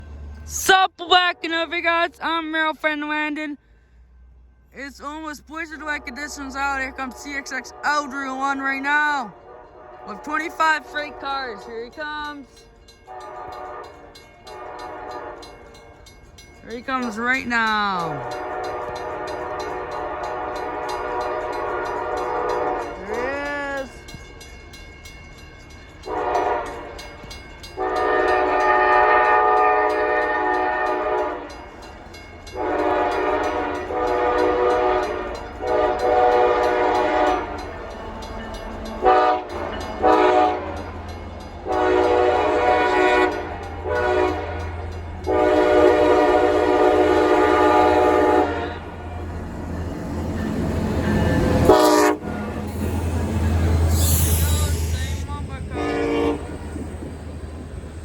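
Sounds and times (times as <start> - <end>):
low rumble of passing locomotives: 0.0 - 58.0
locomotive horn blasts: 4.8 - 12.4, 13.1 - 15.8, 16.9 - 23.4, 26.0 - 27.1, 27.7 - 31.8, 32.5 - 49.4, 50.3 - 52.9, 53.5 - 56.6.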